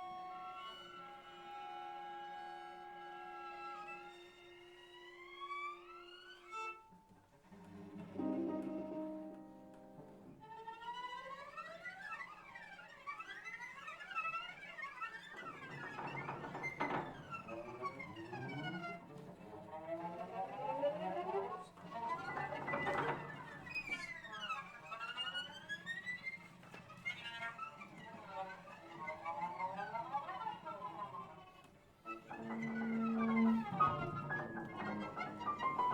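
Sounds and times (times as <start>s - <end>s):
piano: 7.5s - 10.8s, 32.0s - 35.9s
strings sliding in glissandi: 8.0s - 10.2s.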